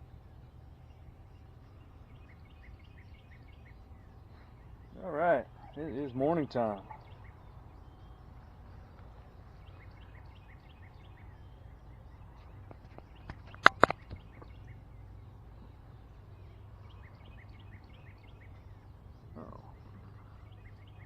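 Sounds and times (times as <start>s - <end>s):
small birds chirping: 0.0s - 21.0s
sharp clicks: 12.7s - 14.5s.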